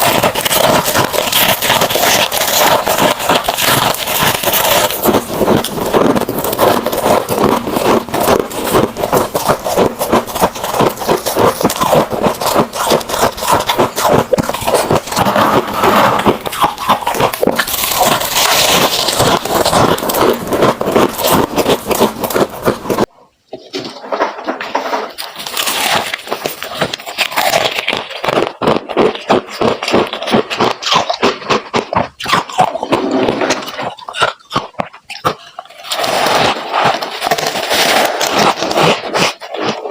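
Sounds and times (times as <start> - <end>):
frost being crunched and chewed: 0.0 - 23.1, 24.8 - 39.9.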